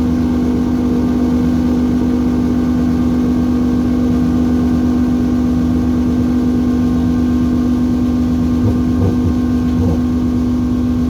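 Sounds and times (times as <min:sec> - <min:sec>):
harsh electronic noise music: 0:08.6 - 0:10.1.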